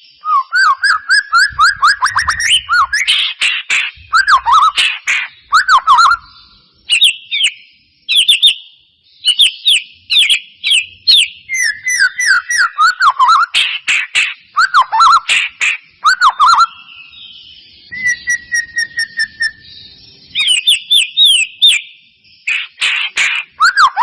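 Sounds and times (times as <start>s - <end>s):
bird singing loud whistles: 0.0s - 24.0s.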